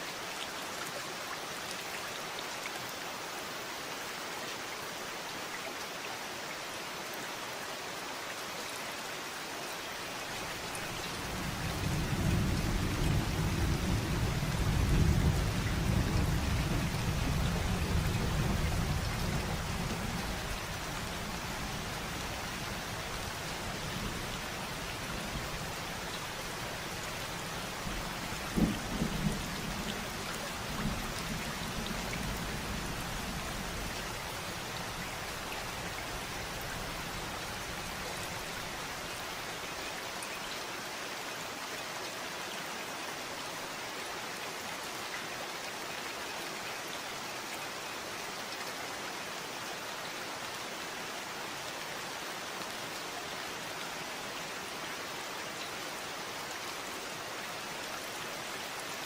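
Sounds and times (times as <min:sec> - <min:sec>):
steady rain: 0:00.0 - 0:59.0
thunder rolling: 0:23.1 - 0:35.6.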